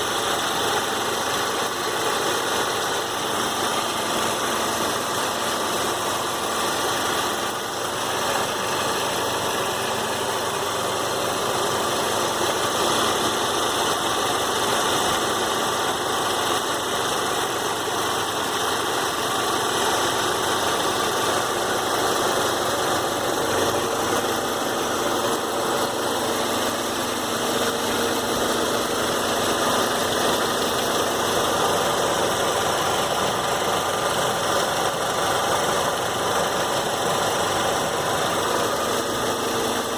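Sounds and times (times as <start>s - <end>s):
car engine running: 0.0s - 39.9s
engine clicking noise: 0.0s - 39.9s.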